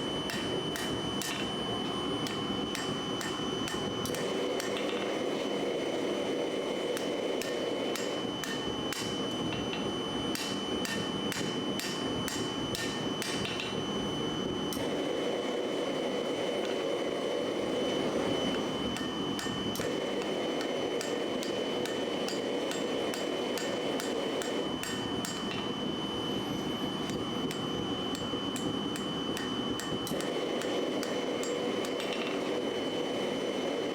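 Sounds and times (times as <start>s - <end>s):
hammer striking steel on anvil: 0.3s - 5.2s, 6.9s - 13.8s, 18.5s - 25.7s, 27.1s - 32.5s.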